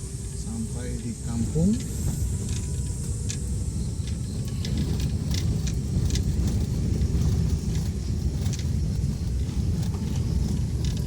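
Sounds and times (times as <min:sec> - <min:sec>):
car road and engine rumble: 0:00.0 - 0:11.0
small clicks and rattles: 0:02.5 - 0:11.0.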